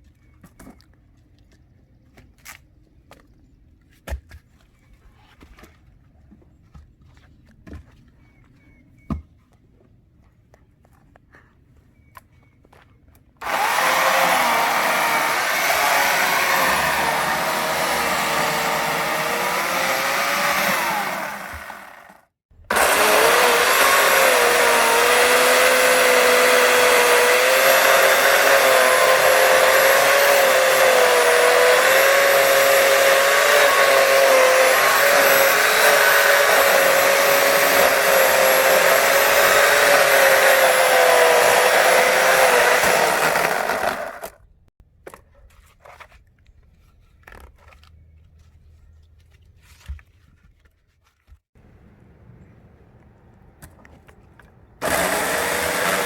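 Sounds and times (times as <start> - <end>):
power tool motor whining: 13.4 - 44.4, 54.8 - 56.0.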